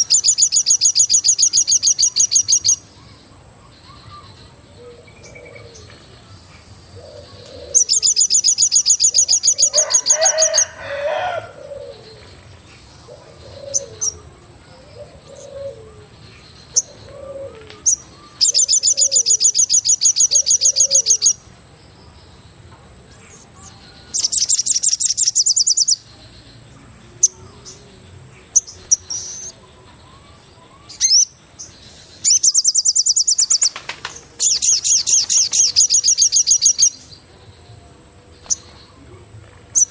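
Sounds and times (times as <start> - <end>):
bird cooing: 3.9 - 6.0, 7.0 - 8.1, 9.1 - 19.6, 20.2 - 21.3
bird high fast trill: 7.7 - 10.8.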